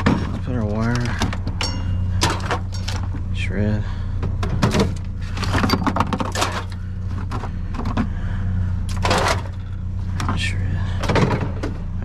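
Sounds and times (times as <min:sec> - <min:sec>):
low hum: 0:00.0 - 0:12.0
scrap metal clattering into bins: 0:01.6 - 0:03.0, 0:09.0 - 0:09.6.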